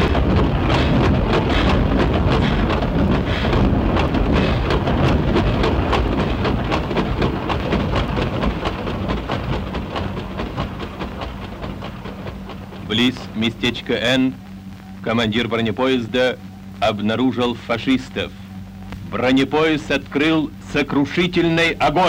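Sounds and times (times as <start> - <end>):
wheels clattering: 0.0 - 14.0
train rumbling on rails: 0.0 - 14.4.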